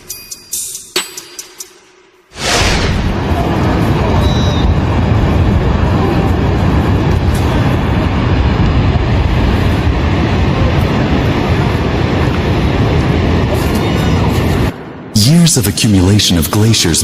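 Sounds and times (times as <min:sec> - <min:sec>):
low rumbling roar: 0:02.4 - 0:15.2.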